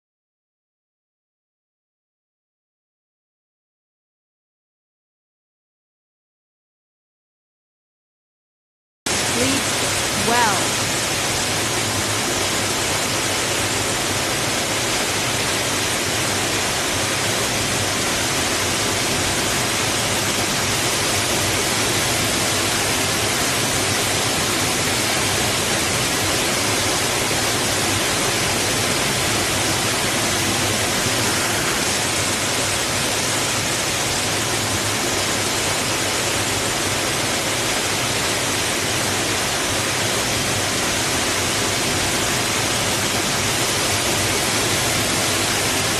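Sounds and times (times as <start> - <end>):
water rushing against rocks: 9.3 - 45.9.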